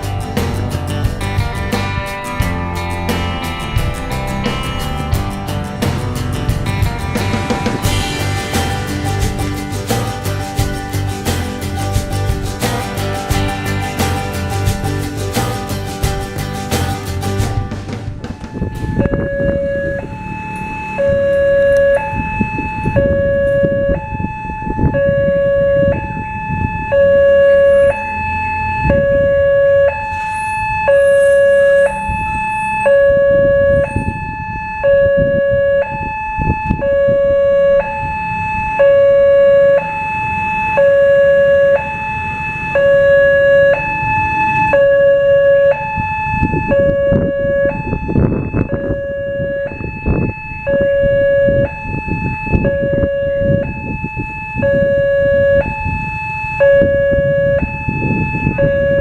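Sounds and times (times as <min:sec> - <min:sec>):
road traffic rumble: 0:00.0 - 0:59.0
two-tone level crossing siren: 0:18.3 - 0:59.0.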